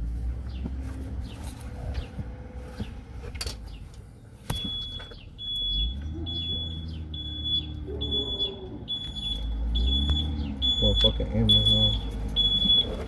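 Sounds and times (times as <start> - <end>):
low engine hum: 0.0 - 13.0
electronic alarm beeping: 4.5 - 13.0.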